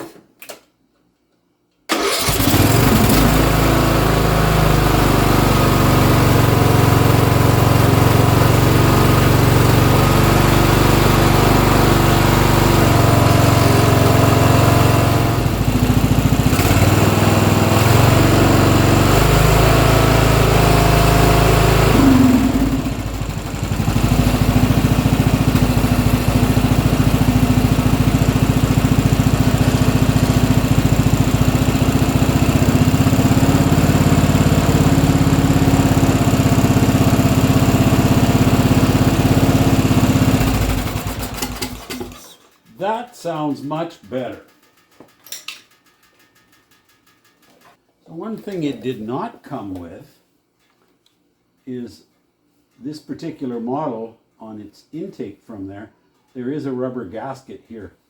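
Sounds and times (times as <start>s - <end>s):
lawn tractor engine running: 1.9s - 43.0s.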